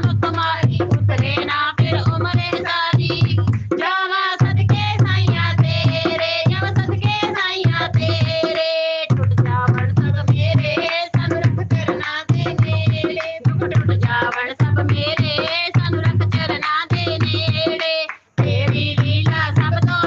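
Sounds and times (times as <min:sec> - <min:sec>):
drum beat: 0:00.0 - 0:17.8, 0:18.4 - 0:20.0
person singing: 0:08.1 - 0:20.0.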